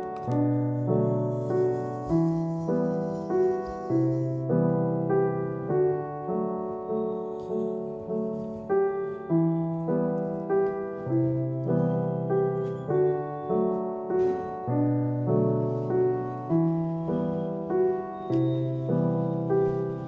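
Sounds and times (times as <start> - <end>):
soft piano music: 0.0 - 20.0.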